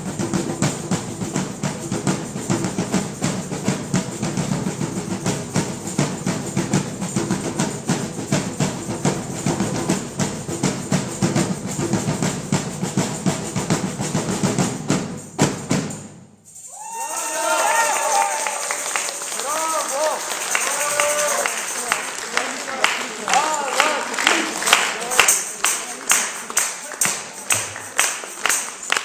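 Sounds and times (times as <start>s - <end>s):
drum ensemble playing: 0.0s - 29.0s.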